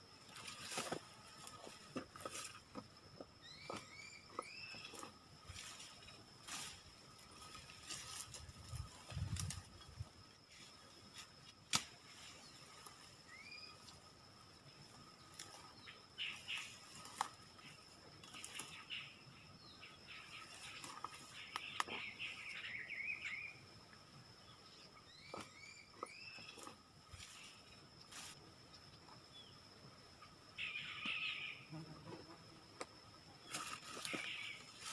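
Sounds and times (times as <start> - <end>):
high insect drone: 0.0 - 34.9
bird chirps: 3.4 - 5.1, 24.4 - 26.7, 30.6 - 31.7.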